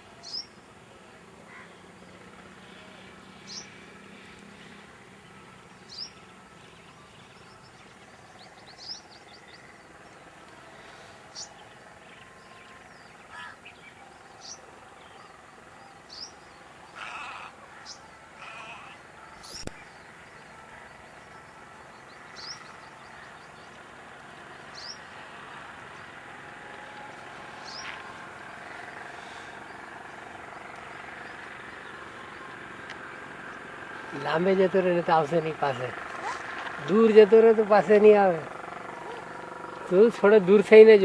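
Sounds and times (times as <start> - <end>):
outdoor background hiss: 0.0 - 41.0
bird chirping: 5.8 - 10.4, 18.8 - 23.8, 24.4 - 25.1, 27.5 - 34.4.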